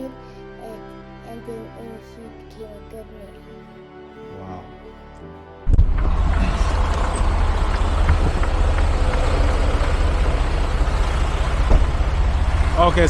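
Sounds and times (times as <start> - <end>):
road noise: 5.7 - 13.0
diesel truck engine rumble: 5.8 - 13.0.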